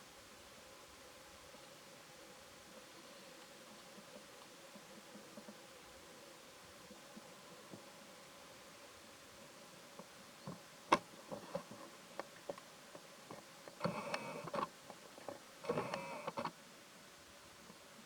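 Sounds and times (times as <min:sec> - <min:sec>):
small clicks and rustles: 0:03.3 - 0:05.8, 0:09.9 - 0:16.6.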